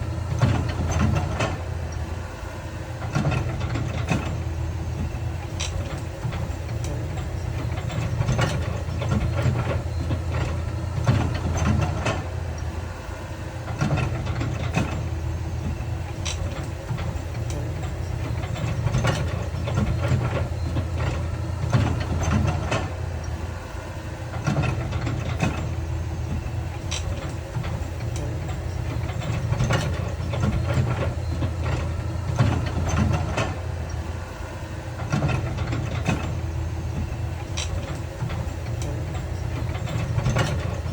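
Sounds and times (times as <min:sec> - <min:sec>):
diesel machinery engine running: 0:00.0 - 0:40.9.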